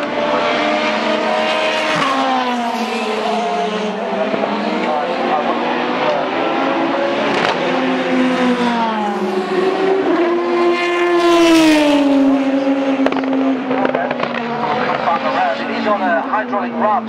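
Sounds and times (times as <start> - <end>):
race car engine passing: 0.0 - 17.0.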